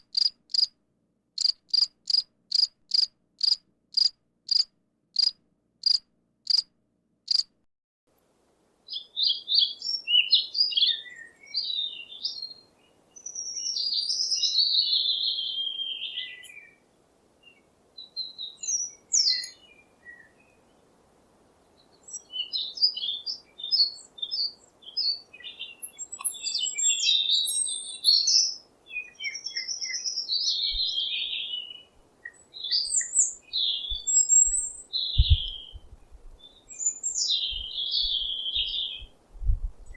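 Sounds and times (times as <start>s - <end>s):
insect chirps: 0.0s - 0.8s, 1.4s - 6.7s, 7.3s - 7.5s, 32.3s - 39.1s
songbird singing: 8.9s - 20.9s, 21.6s - 39.9s.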